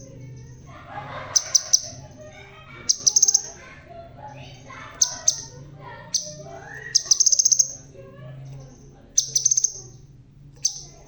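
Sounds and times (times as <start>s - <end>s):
bird singing trilled notes: 1.3s - 2.0s, 2.8s - 3.6s, 4.9s - 11.0s.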